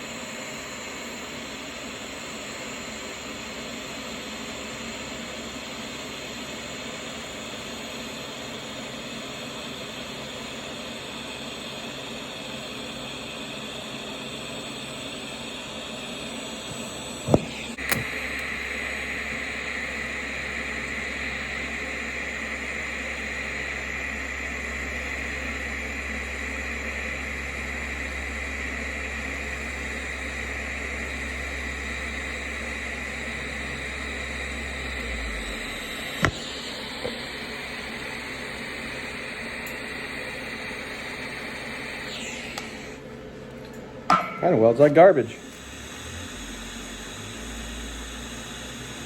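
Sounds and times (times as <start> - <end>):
shop tool running: 11.9 - 43.3, 44.2 - 49.0
tool switch clicks: 16.7 - 18.5, 36.2 - 37.2.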